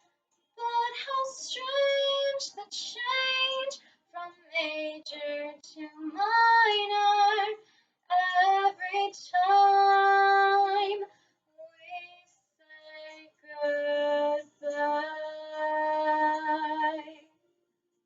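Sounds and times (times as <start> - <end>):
child singing: 0.6 - 11.0.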